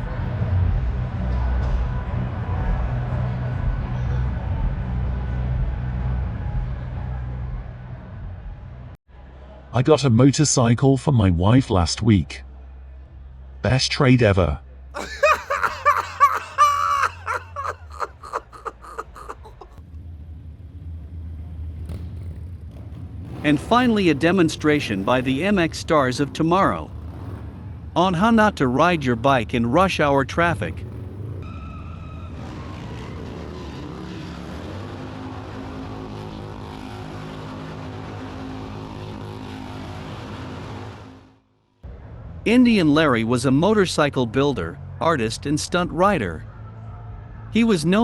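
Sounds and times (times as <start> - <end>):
person laughing: 15.0 - 19.8
motocross bike engines droning: 23.0 - 27.6.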